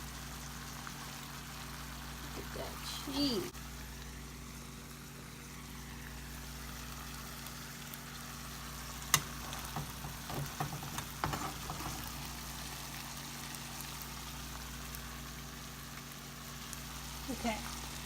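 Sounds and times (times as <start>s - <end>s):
meat sizzling in a frying pan: 0.0s - 18.0s
utensil knocking and scraping pan: 9.2s - 12.2s.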